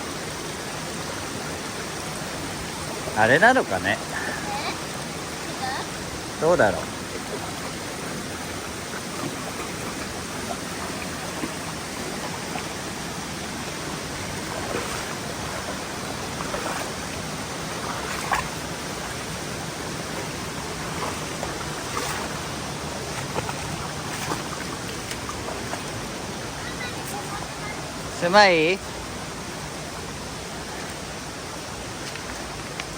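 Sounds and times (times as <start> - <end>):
water rushing over rocks: 0.0 - 32.9
knocks and splashes: 6.4 - 27.4.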